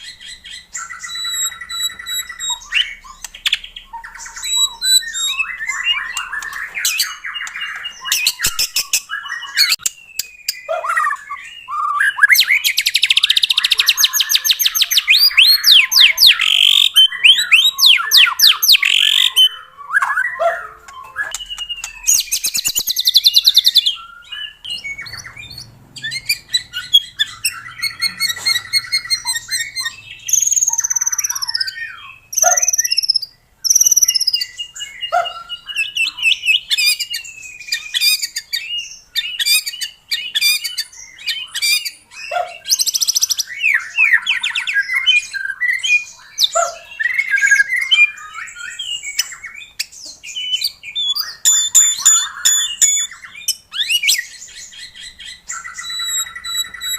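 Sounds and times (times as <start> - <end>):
bird singing whistled phrases: 0.0 - 56.9.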